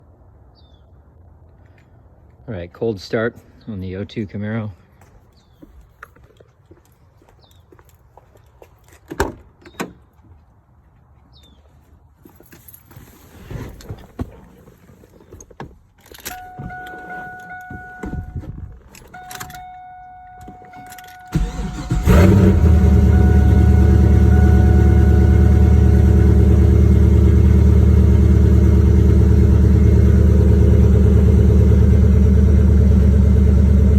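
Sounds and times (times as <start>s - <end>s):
car warning tone: 16.2s - 30.3s
car engine idling: 19.1s - 33.9s
starter cranking: 20.8s - 26.4s.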